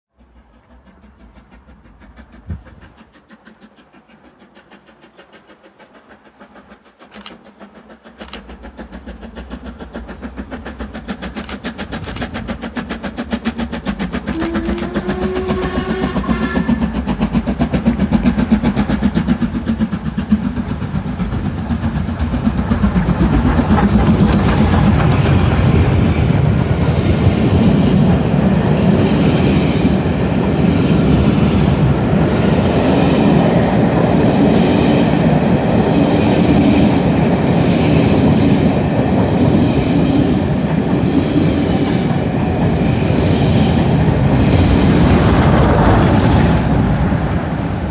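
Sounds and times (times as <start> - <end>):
steam locomotive exhaust beats: 0.1 - 47.9
sharp clicks: 7.1 - 7.4, 8.2 - 8.5, 11.3 - 12.5, 14.3 - 15.0.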